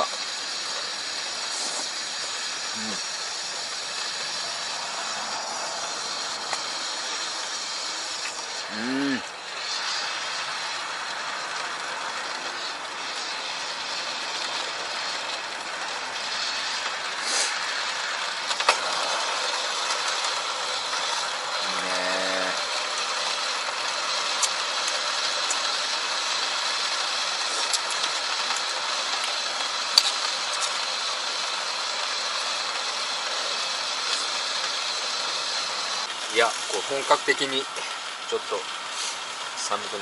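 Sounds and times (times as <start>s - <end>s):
fire crackles and pops: 0.0s - 39.9s
bonfire hissing: 0.0s - 40.0s
low hum: 0.3s - 17.2s.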